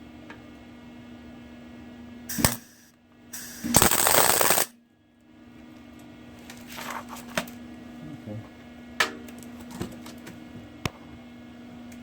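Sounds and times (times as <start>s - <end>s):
faint steady hum: 0.0s - 9.4s
arc welder crackling: 2.3s - 4.7s.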